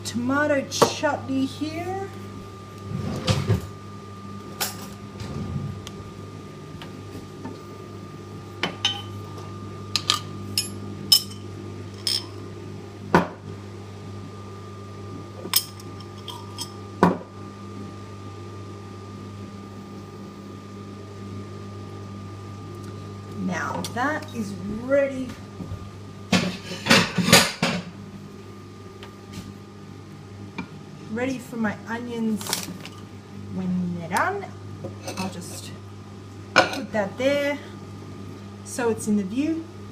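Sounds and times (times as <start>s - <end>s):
microwave oven humming: 0.0s - 39.9s
utensils clinking on glass and crockery: 10.0s - 11.4s, 12.0s - 12.4s, 15.5s - 16.8s.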